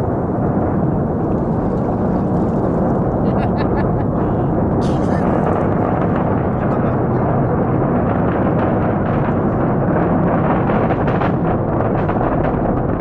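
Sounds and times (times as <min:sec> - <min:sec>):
rocket engine rumble with crackles: 0:00.0 - 0:13.0.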